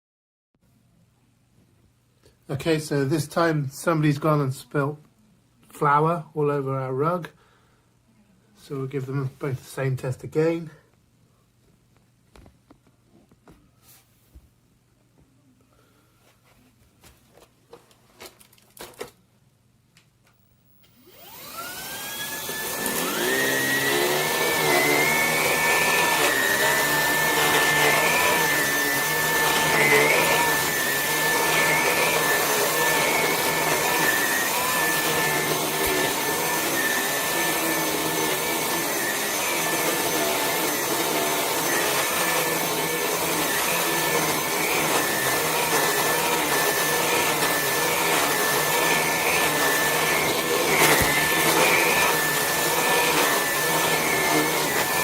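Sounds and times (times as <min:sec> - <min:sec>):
vacuum cleaner motor whining: 0:20.3 - 0:55.0.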